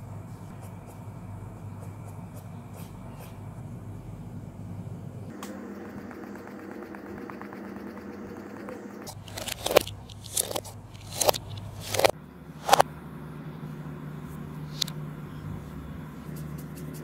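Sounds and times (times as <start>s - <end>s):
pencil scratching on paper: 5.6s - 10.6s, 16.2s - 17.0s.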